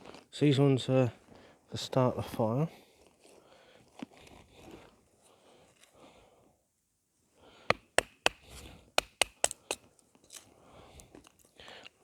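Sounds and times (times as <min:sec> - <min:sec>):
sharp wooden knocks: 0:07.7 - 0:09.8.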